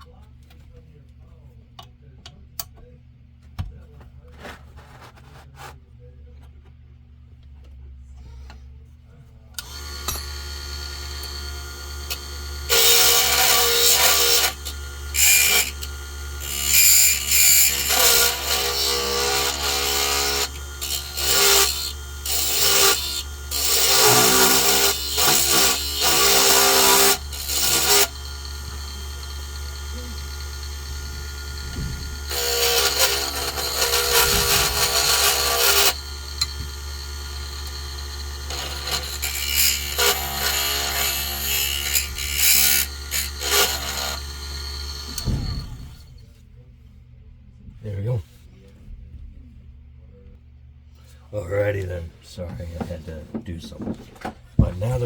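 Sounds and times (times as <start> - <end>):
lathe motor humming: 9.6 - 46.0
tool shaping spinning wood: 9.6 - 46.1.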